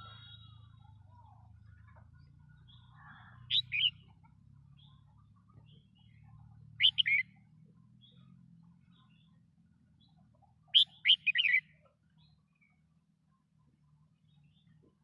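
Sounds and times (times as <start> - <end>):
faint low hum: 0.0 - 10.8
bird singing short phrases: 2.8 - 4.0, 6.8 - 7.2, 10.8 - 11.6.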